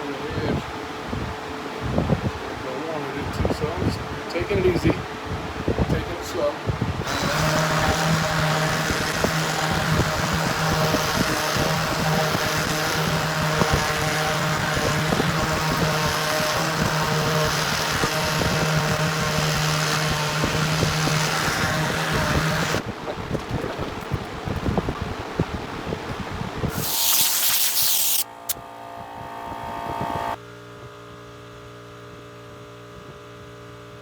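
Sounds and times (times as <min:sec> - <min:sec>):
electric sander running: 0:07.0 - 0:22.8, 0:26.7 - 0:30.4.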